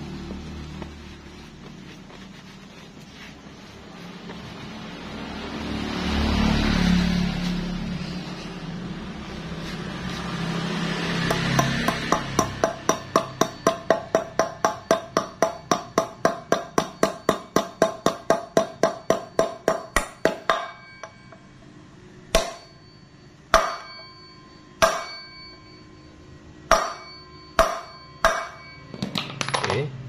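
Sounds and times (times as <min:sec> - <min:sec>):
hammer striking metal: 0:11.2 - 0:21.5, 0:22.3 - 0:22.8, 0:23.5 - 0:25.6, 0:26.7 - 0:29.8.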